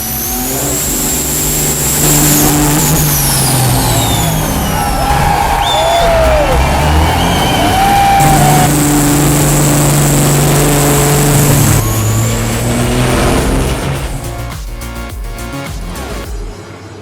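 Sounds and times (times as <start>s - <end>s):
whistling glides: 0.0s - 14.8s
heavy diesel truck engine: 0.0s - 15.1s
steady high whine: 0.0s - 15.6s.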